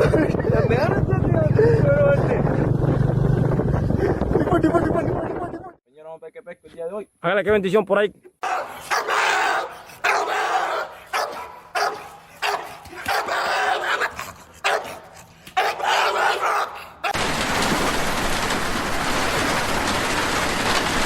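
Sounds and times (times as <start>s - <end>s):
dog barking: 8.4s - 17.2s.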